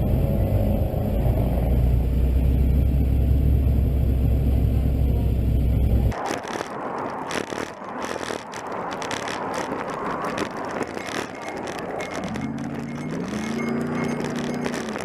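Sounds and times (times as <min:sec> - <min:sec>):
road and wind noise: 0:00.0 - 0:15.0
engine accelerating: 0:11.2 - 0:15.0.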